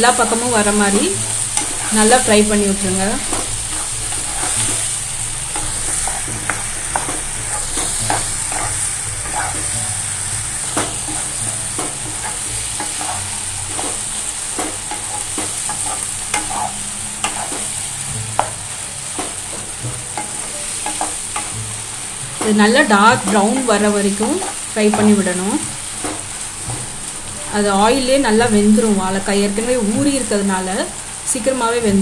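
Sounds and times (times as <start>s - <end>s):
food sizzling in oil: 0.0s - 32.0s
spatula scraping and knocking pan: 0.4s - 25.4s.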